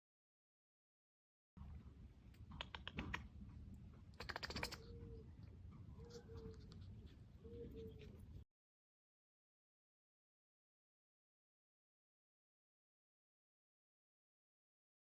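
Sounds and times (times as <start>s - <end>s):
puppy whining: 4.2s - 8.4s.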